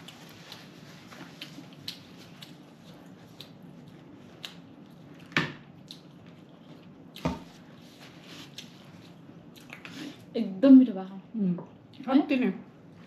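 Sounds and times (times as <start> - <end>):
chewing clicks and smacks: 0.0 - 7.3, 8.5 - 9.9.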